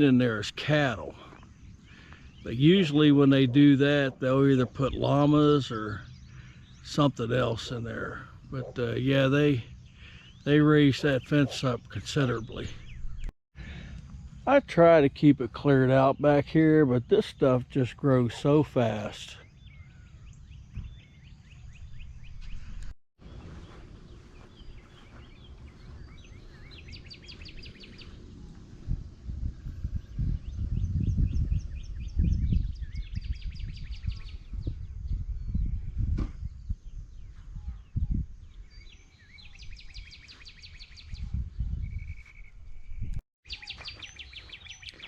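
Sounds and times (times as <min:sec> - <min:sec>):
birds chirping: 0:00.0 - 0:45.0
songbird chirping and whistling: 0:23.6 - 0:28.2, 0:37.8 - 0:45.0.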